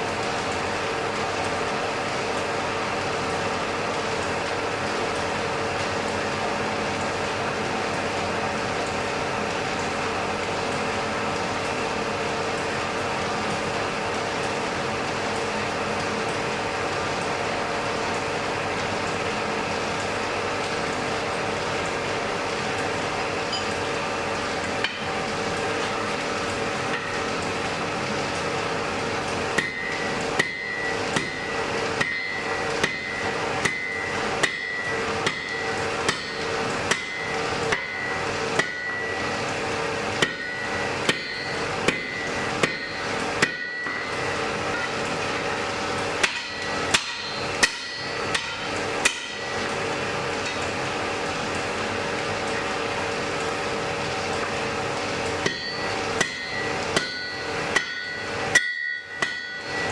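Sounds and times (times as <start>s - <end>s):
hammer striking an anvil: 32.0s - 35.5s, 40.2s - 44.0s, 46.2s - 49.4s, 55.4s - 59.9s.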